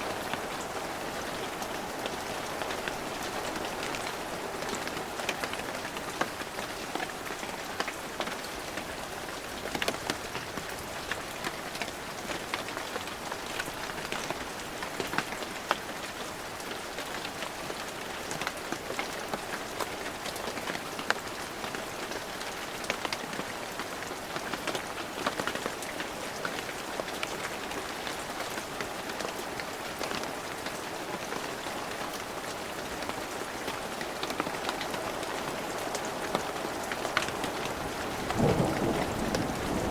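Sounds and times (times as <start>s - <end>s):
raindrops ticking on surfaces: 0.0s - 39.9s
heavy rain hissing: 34.8s - 39.9s.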